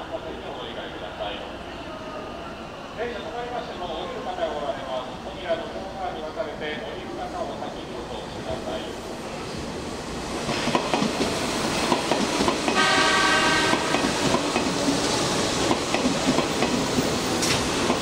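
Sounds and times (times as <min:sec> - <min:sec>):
train wheels clicking over rail joints: 0:10.3 - 0:18.0
train horn blast: 0:12.7 - 0:14.0.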